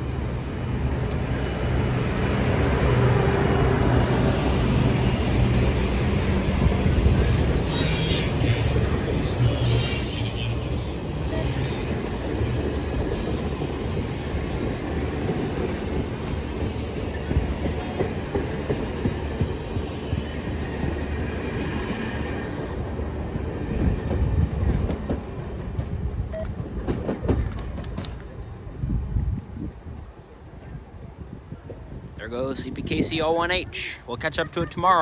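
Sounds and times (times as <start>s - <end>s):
train rumble: 0.0s - 35.0s
wheel squeal: 5.0s - 12.2s.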